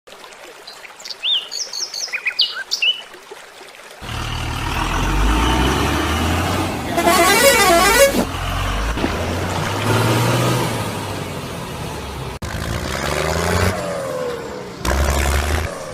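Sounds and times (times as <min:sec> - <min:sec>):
vehicle engine rumble: 0:04.0 - 0:15.9
warbling horn: 0:06.9 - 0:08.4.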